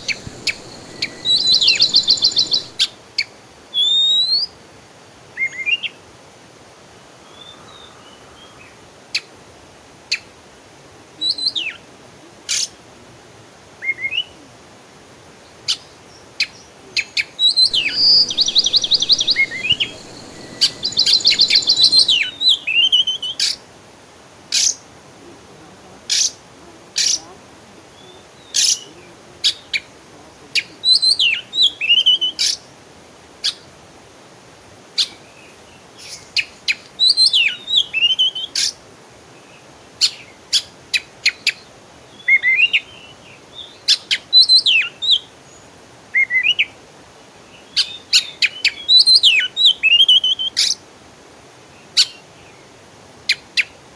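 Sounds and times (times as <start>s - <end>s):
songbirds chirping and singing: 0.0s - 2.8s, 17.6s - 22.9s.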